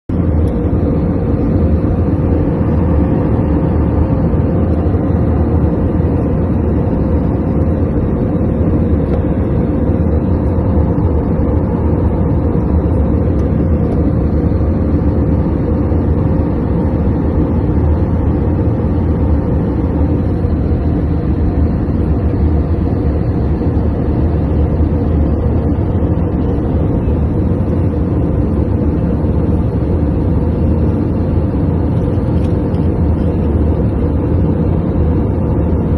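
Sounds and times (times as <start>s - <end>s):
airplane drone: 0.0s - 35.9s.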